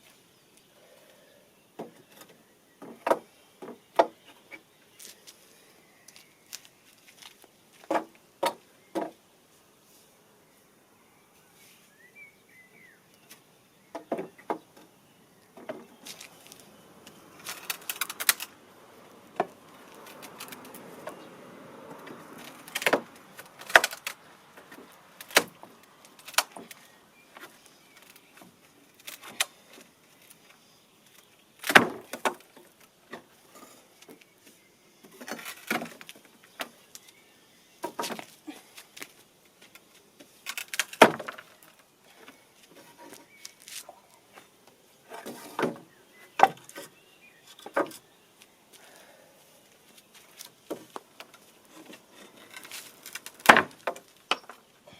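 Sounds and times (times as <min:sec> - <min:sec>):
scraping and rustling: 0:15.6 - 0:18.7, 0:37.8 - 0:45.9, 0:49.8 - 0:54.7.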